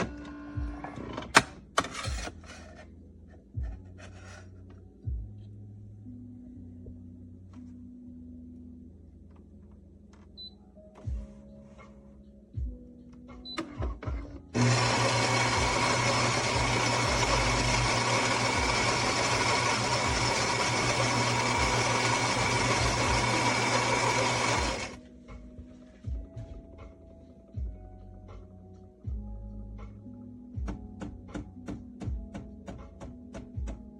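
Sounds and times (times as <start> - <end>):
espresso machine running: 14.6 - 25.0.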